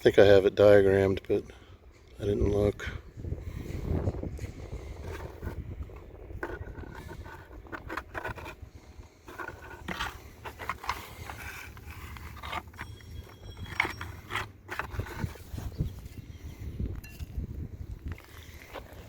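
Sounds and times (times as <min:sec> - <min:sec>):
plastic box lid scraping and clicking: 0:05.0 - 0:08.6, 0:09.2 - 0:16.1.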